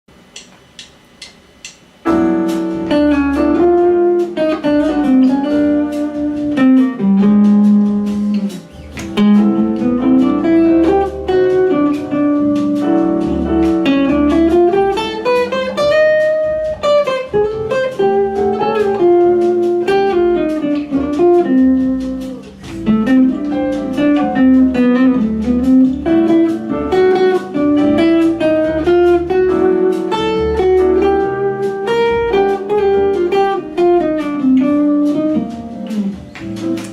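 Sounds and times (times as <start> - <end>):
bluesy guitar playing: 2.1 - 36.9.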